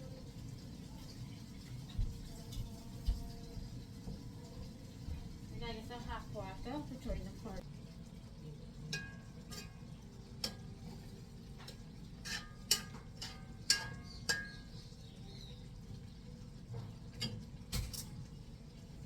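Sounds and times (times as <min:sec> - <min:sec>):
low background hum: 0:00.0 - 0:19.0
metal pots and utensils clinking: 0:08.8 - 0:18.8.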